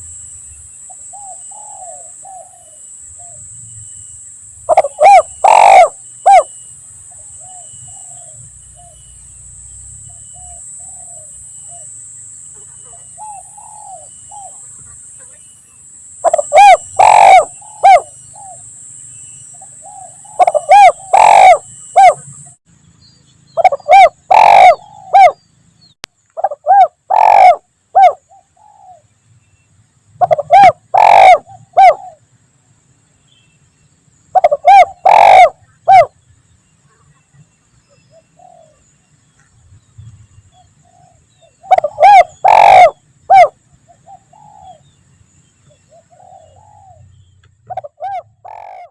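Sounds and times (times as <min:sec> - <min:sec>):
dove cooing: 0:01.1 - 0:03.4, 0:04.7 - 0:09.0, 0:10.0 - 0:11.9, 0:12.6 - 0:15.4, 0:16.2 - 0:18.7, 0:19.5 - 0:22.4, 0:23.6 - 0:25.4, 0:26.4 - 0:29.0, 0:30.2 - 0:32.2, 0:34.3 - 0:36.2, 0:38.0 - 0:38.8, 0:40.5 - 0:44.9, 0:45.7 - 0:47.0, 0:47.7 - 0:48.9.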